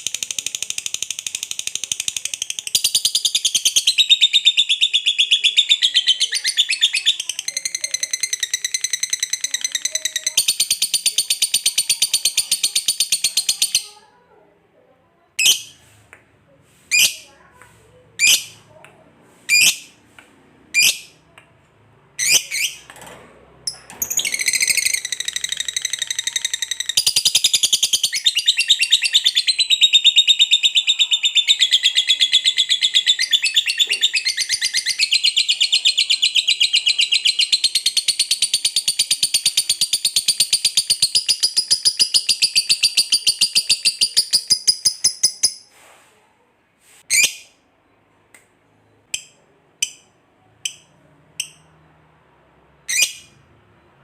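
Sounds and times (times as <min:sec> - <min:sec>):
lovebird chattering trill: 0:00.0 - 0:13.9, 0:18.2 - 0:18.6, 0:19.5 - 0:19.9, 0:20.7 - 0:21.2, 0:22.2 - 0:22.8, 0:23.7 - 0:45.7, 0:52.9 - 0:53.4
lovebird chirping: 0:00.0 - 0:14.0, 0:15.4 - 0:15.8, 0:18.2 - 0:18.6, 0:19.5 - 0:20.0, 0:20.7 - 0:21.3, 0:22.2 - 0:22.9, 0:23.7 - 0:45.7, 0:47.1 - 0:47.6, 0:48.8 - 0:51.9, 0:52.7 - 0:54.0.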